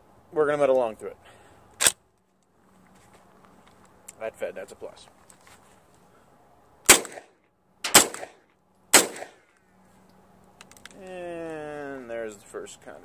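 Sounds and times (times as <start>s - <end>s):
suppressed gunshots: 6.9s - 9.4s.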